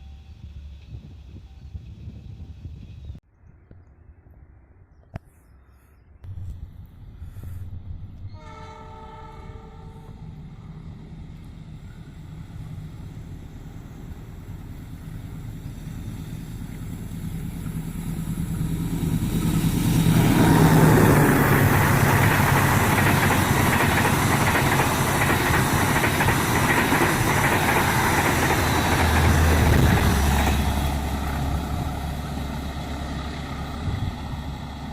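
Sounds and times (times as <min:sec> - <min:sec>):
locomotive engine hum: 0:06.3 - 0:34.9
train wheels on rails: 0:10.1 - 0:34.9.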